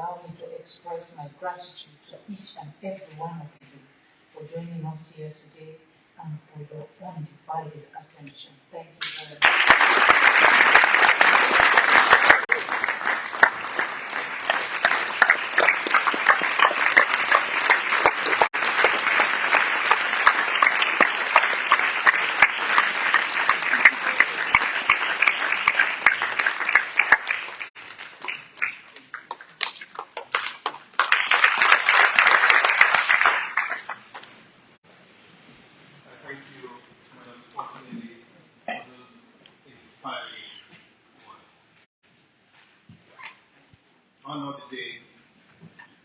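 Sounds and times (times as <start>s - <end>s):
audience applauding: 9.4s - 34.4s.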